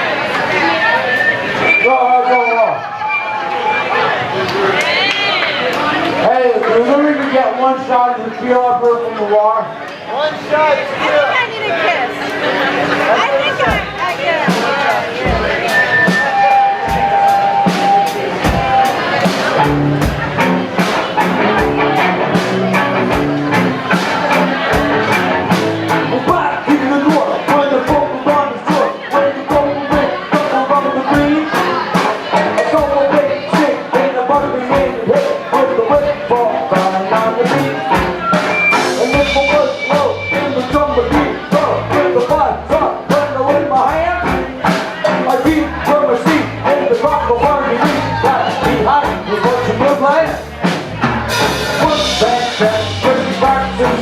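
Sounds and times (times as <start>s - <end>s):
rock band playing: 0.0s - 9.8s, 10.4s - 54.0s
drum kit beat: 12.8s - 54.0s.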